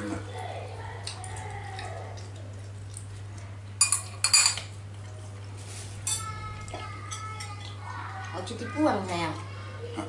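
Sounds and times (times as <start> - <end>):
utensils clinking against a dish: 3.8 - 5.2, 6.0 - 9.4.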